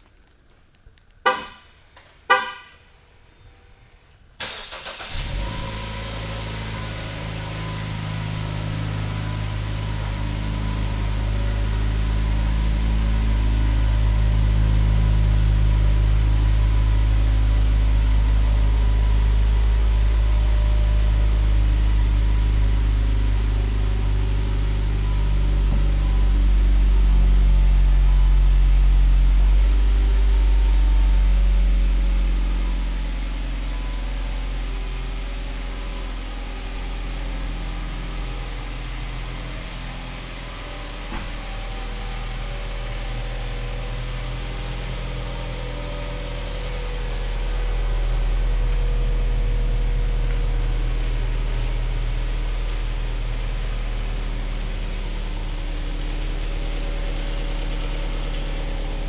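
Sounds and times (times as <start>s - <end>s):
car engine starting and idling: 0.0s - 59.0s
car horn chirps: 1.2s - 2.9s.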